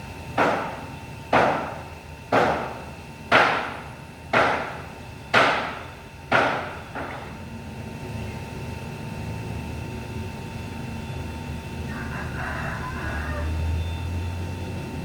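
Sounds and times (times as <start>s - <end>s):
steady low hum: 0.0s - 15.0s
sharp knocks: 0.4s - 7.4s.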